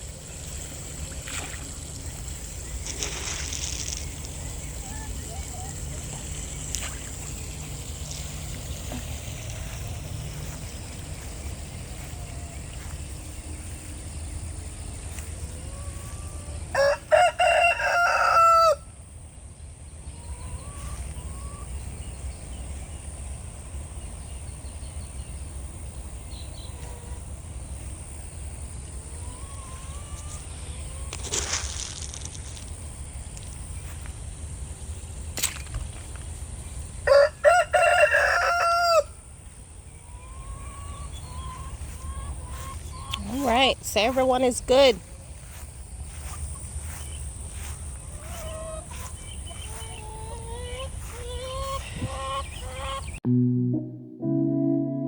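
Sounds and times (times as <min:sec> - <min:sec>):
steady low rumble: 0:00.0 - 0:16.0
rooster crowing: 0:15.9 - 0:19.0, 0:37.0 - 0:39.2
faint bird calls: 0:45.0 - 0:53.2.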